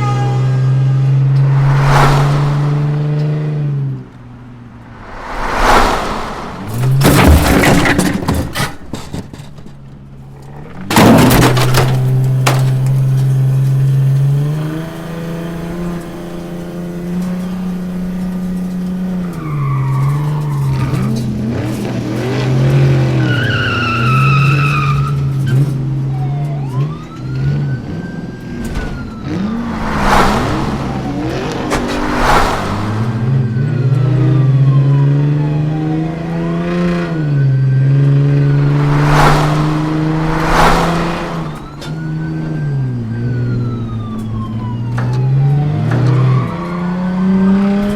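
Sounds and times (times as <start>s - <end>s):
car engine revving: 0.9s - 8.0s, 29.3s - 34.2s, 38.0s - 42.3s
police siren wailing: 41.6s - 47.4s.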